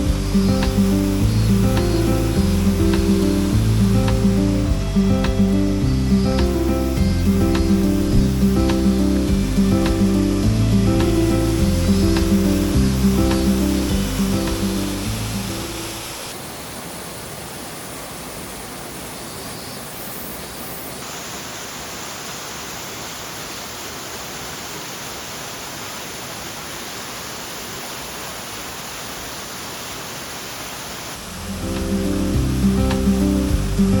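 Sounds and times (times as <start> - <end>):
small waterfall rushing: 0.0 - 34.0.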